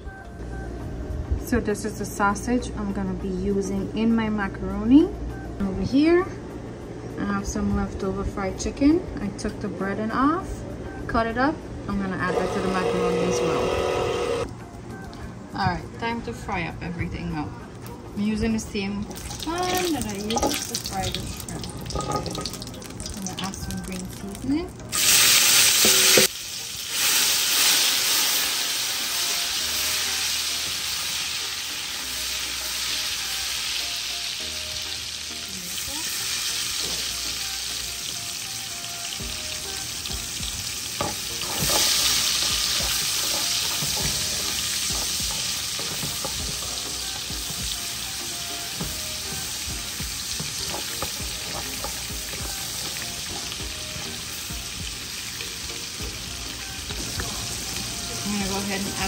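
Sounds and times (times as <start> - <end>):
food sizzling in hot oil: 19.1 - 59.0.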